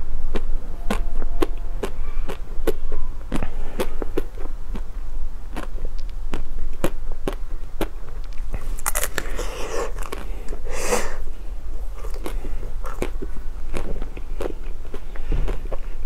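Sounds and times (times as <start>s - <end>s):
biting and chewing snack: 0.0s - 16.0s
crackling: 0.0s - 16.0s
low electrical hum: 0.0s - 16.0s
wet mouth clicks: 0.3s - 4.9s, 12.0s - 16.0s.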